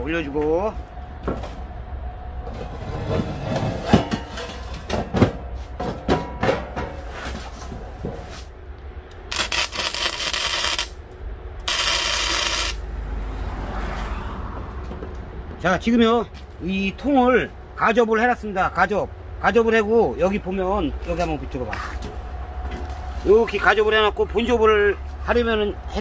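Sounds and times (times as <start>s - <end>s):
steel plates clanking: 2.6s - 7.3s
arc welder hissing: 9.3s - 11.0s, 11.6s - 12.8s.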